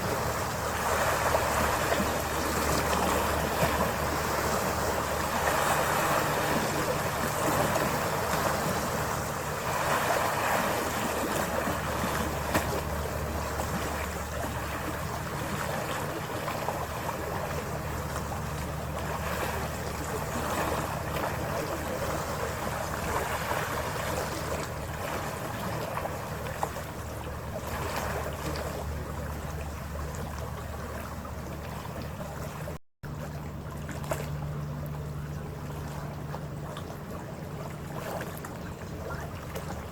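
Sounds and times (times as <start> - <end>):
low engine drone: 0.0 - 39.9
rushing water: 0.0 - 39.9.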